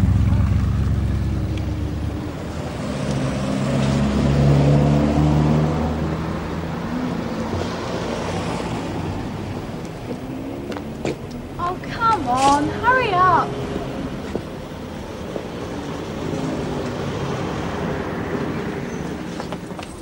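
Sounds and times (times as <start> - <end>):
car driving off: 0.0 - 20.0.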